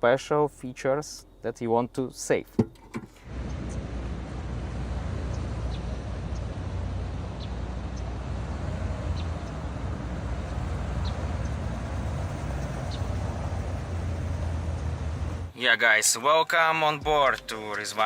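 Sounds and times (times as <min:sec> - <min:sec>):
car engine rumbling: 0:02.6 - 0:15.6.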